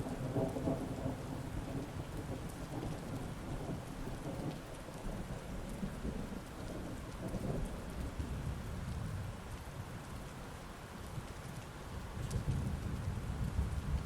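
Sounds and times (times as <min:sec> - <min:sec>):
rolling thunder rumbling: 0:00.0 - 0:09.2
heavy rain falling: 0:00.0 - 0:14.0.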